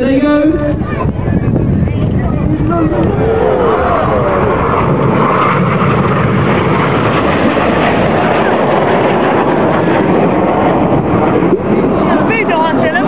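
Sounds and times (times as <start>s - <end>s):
jet engines flying overhead: 0.0s - 13.0s.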